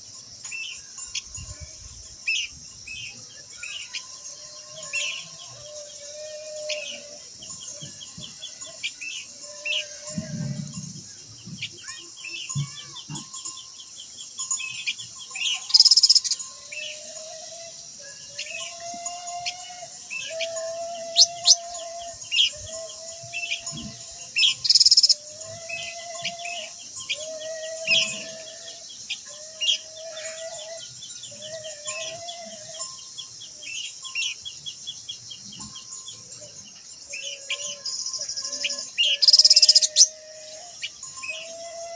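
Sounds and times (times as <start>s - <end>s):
high insect hiss: 0.0s - 41.9s
birds whistling: 20.1s - 32.8s, 37.1s - 41.9s.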